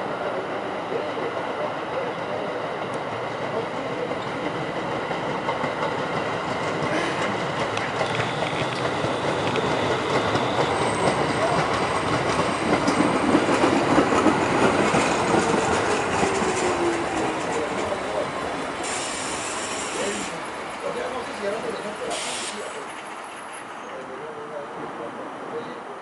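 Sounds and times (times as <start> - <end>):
falling whine of slowing train: 0.0 - 25.8
subway train rolling: 0.0 - 26.0
wheels clicking over rail joints: 4.2 - 18.2.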